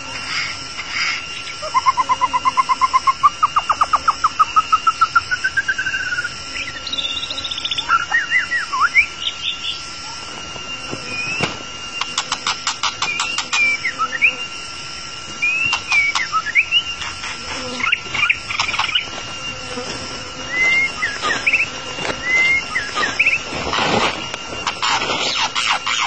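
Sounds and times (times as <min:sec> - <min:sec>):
faint steady whine: 0:00.0 - 0:26.0
bird singing whistled notes: 0:01.7 - 0:09.9, 0:12.8 - 0:14.6, 0:15.4 - 0:17.1, 0:20.4 - 0:23.5.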